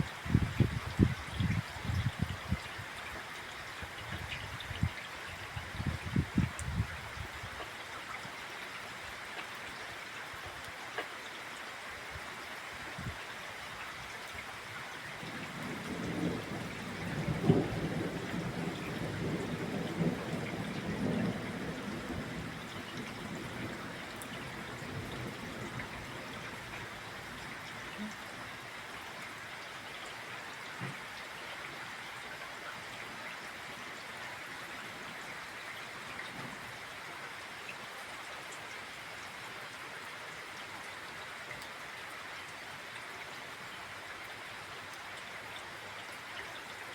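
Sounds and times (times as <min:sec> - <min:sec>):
rain pattering: 0:00.0 - 0:46.9
thunder rumbling: 0:15.4 - 0:26.0.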